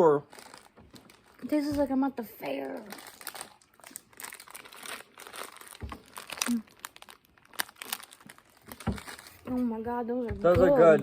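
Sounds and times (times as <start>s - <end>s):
candy packaging crinkling: 0.0s - 9.8s.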